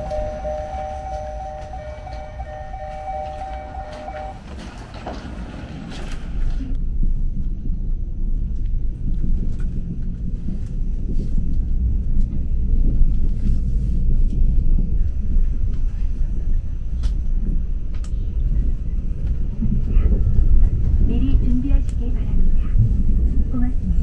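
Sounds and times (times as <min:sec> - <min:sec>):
train rumble from inside carriage: 0:00.0 - 0:24.0.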